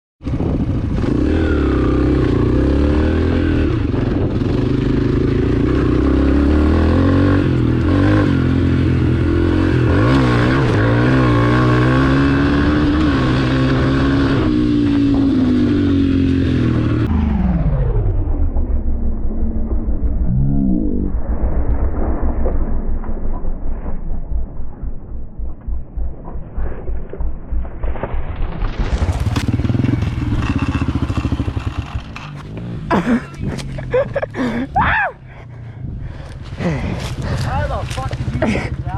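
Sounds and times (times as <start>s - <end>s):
dirt bike engine revving: 0.3s - 18.1s, 28.7s - 34.8s.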